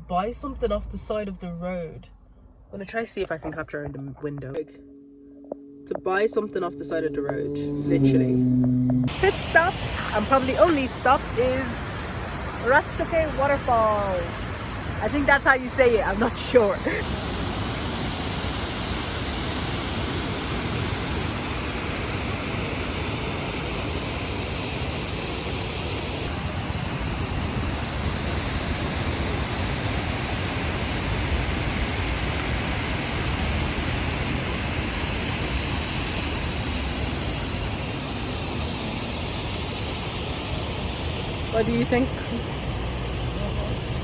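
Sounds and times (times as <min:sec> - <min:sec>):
waterfall rushing: 0:09.1 - 0:41.6.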